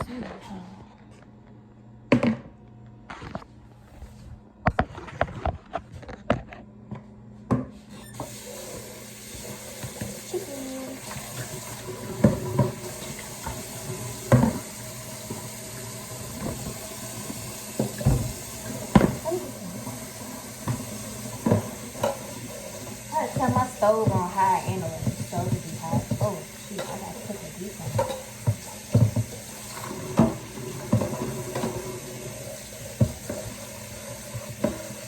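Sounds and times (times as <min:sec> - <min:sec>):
knocks and clunks at sink: 0:02.1 - 0:02.5, 0:11.1 - 0:13.6, 0:14.2 - 0:14.7, 0:16.4 - 0:20.0, 0:20.6 - 0:22.4, 0:23.2 - 0:32.1, 0:32.9 - 0:33.6
tap water running into sink: 0:08.2 - 0:35.0.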